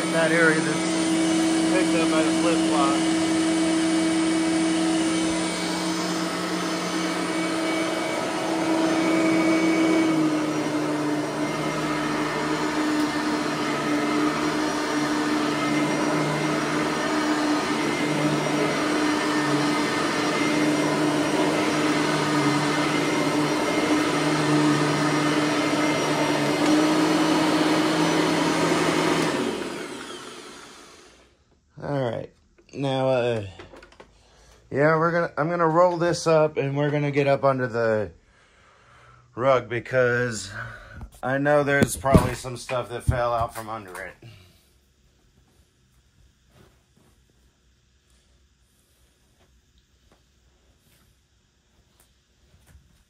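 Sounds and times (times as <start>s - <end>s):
vacuum cleaner motor whine: 0.0s - 32.1s, 41.3s - 44.5s.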